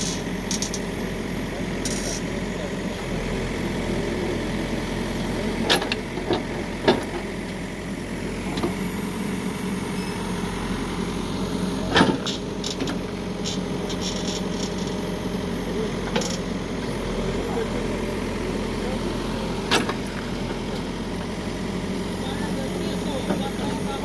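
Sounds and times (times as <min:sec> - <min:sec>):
diesel engine idling: 0:00.0 - 0:24.0
sharp engine knocks: 0:11.9 - 0:14.8, 0:19.7 - 0:20.1.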